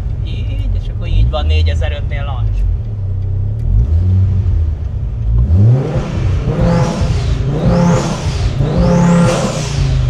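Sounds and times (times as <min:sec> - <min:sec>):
car engine revving against limiter: 0:03.2 - 0:10.0.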